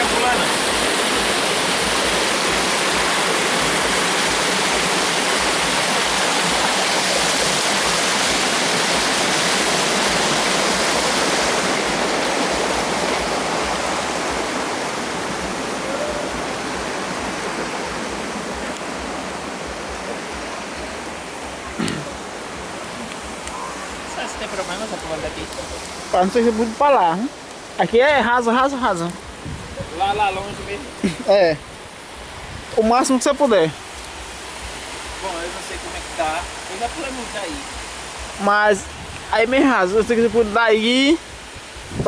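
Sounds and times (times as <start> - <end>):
waterfall pouring and splashing: 0.0 - 42.0.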